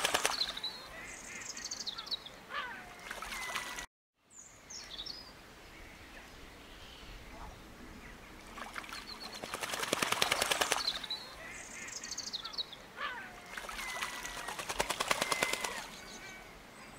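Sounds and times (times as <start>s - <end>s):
bird rattling trills: 8.9s - 11.2s, 13.5s - 16.2s.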